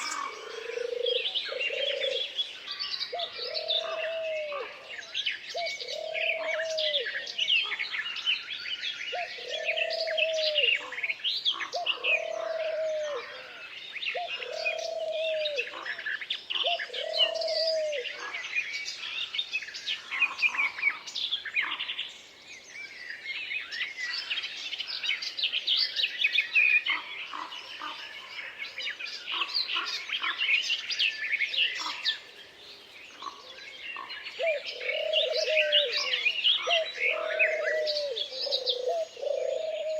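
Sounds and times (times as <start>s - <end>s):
low cooing bird call: 0.0s - 8.1s, 9.1s - 19.2s, 33.1s - 39.9s
songbirds chirping and twittering: 0.0s - 39.9s.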